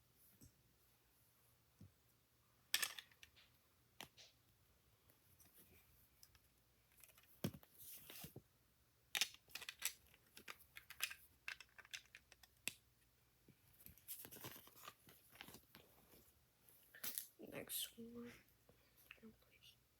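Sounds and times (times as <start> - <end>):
plastic bricks clicking: 9.2 - 12.8.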